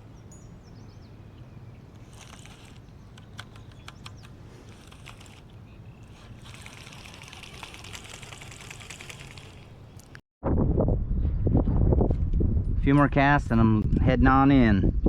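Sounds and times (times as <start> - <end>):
small clicks and knocks on kayak: 2.0 - 10.2
urine trickling into water: 3.6 - 10.2.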